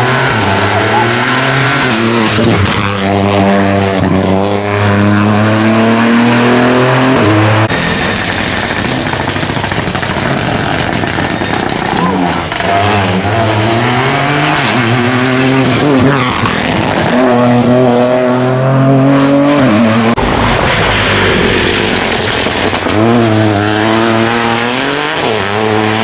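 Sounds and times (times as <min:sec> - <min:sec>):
car noise: 0:00.0 - 0:26.0
rally car engine accelerating: 0:00.0 - 0:26.0.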